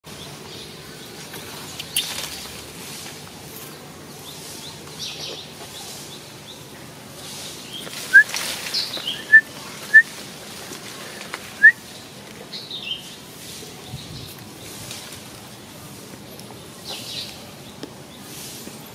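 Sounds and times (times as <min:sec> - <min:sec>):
birds chirping: 0:00.1 - 0:10.3, 0:10.9 - 0:18.9
downward-sliding bird calls: 0:07.4 - 0:10.1.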